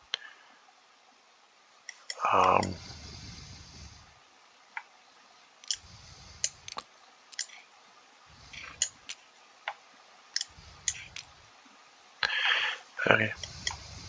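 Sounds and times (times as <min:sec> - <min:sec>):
faint low rumbles: 0:02.1 - 0:12.4, 0:13.0 - 0:14.0
computer mouse clicking: 0:05.6 - 0:07.6, 0:08.5 - 0:09.8, 0:10.4 - 0:11.4, 0:13.4 - 0:13.9.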